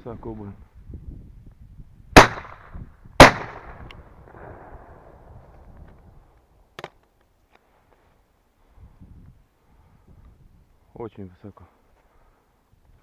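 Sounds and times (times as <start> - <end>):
shotgun shot: 2.2 - 5.2.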